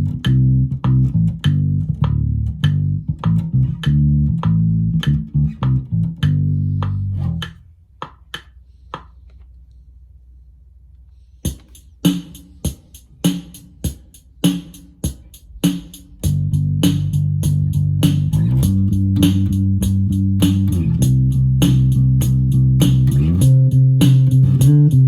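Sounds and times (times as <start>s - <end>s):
bass guitar held notes: 0.0s - 7.6s, 16.2s - 25.0s
drum machine pattern: 11.4s - 25.0s.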